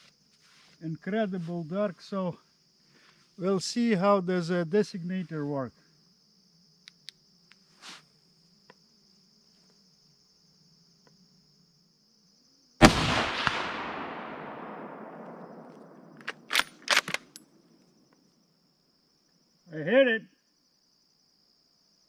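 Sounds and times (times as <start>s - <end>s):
crickets chirping: 0.0s - 22.0s
rifle shot: 12.8s - 17.3s
rifle bolt clicks: 15.7s - 17.4s.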